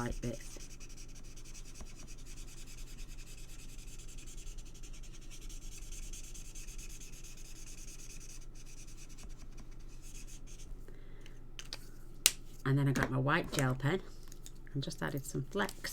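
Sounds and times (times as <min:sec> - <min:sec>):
marker scratching on cardstock: 0:00.0 - 0:10.7.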